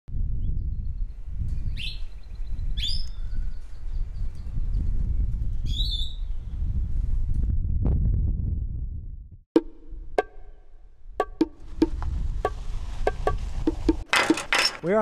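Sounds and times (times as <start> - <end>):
birds chirping and whistling: 1.6 - 4.9, 5.5 - 6.4.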